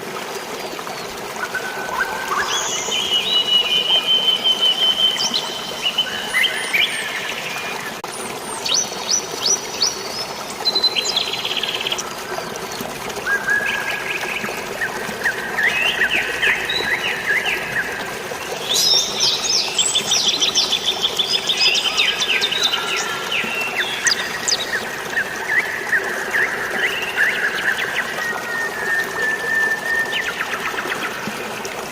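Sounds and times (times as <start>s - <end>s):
flowing water: 0.0s - 31.9s.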